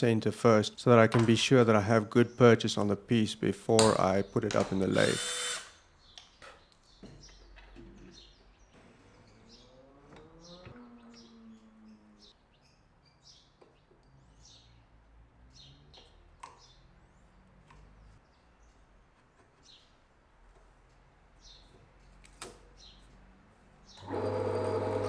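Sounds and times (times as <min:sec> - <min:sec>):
handling knocks and clicks: 0:01.0 - 0:01.5, 0:03.8 - 0:04.9
faint bird chirping: 0:06.0 - 0:20.0.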